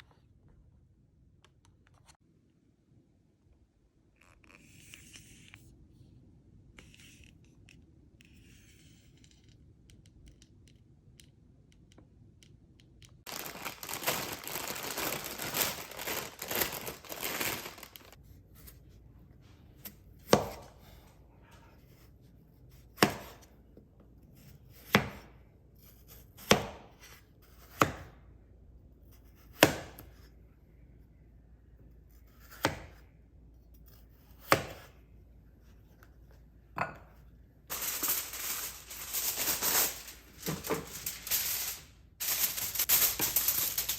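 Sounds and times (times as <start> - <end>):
knife chopping on cutting board: 26.4 - 26.9, 32.4 - 33.0
rustling and scraping: 37.7 - 43.9.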